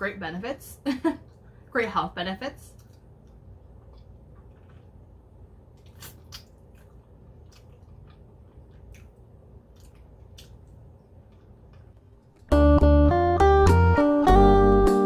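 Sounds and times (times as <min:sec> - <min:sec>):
faint room hum: 0:00.0 - 0:13.2
person chewing softly: 0:02.7 - 0:12.4
lip smacks and wet clicks: 0:05.7 - 0:12.1
guitar music: 0:12.5 - 0:15.0.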